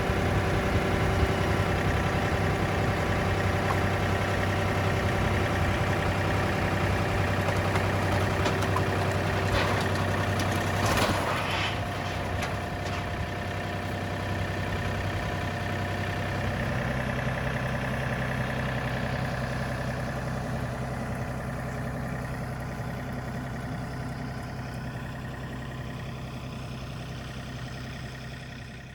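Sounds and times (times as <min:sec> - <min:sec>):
engine running: 0:00.0 - 0:28.9
clattering knocks: 0:07.1 - 0:13.5.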